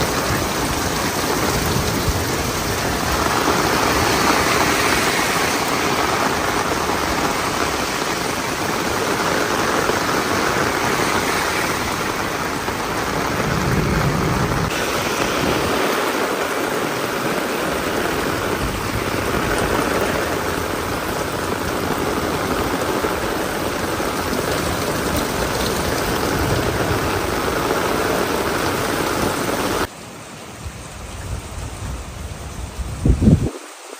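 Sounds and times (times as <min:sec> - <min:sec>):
heavy rain: 0:00.0 - 0:33.9
low rumble: 0:12.6 - 0:14.7.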